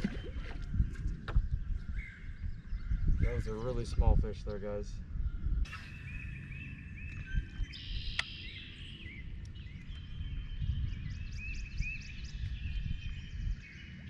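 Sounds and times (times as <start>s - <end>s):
songbirds chirping: 0.0s - 14.0s
bird trill: 5.3s - 14.0s.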